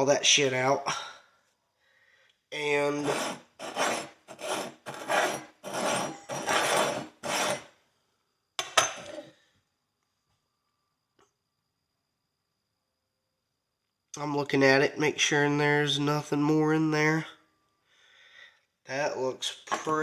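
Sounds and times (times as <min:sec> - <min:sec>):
metal pick scraping horseshoe: 0:02.9 - 0:07.7.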